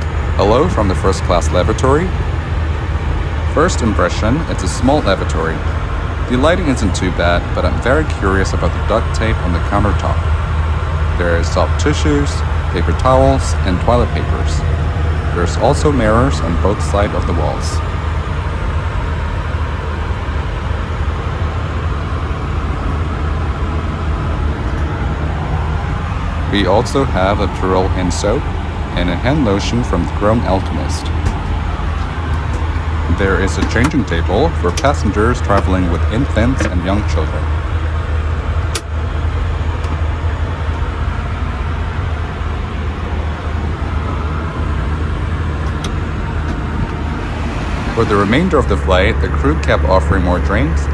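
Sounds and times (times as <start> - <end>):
airliner cabin rumble and hiss: 0.0 - 50.9
hiss of rushing air: 37.0 - 50.9.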